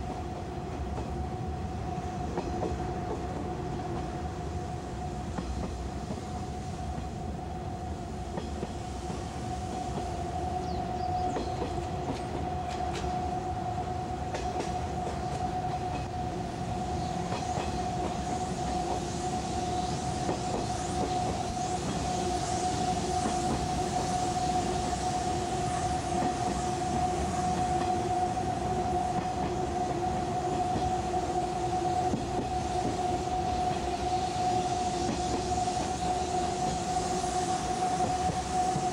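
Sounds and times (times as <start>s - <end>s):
electric train running rumble: 0.0s - 38.9s
rail-joint clicks: 17.2s - 18.3s.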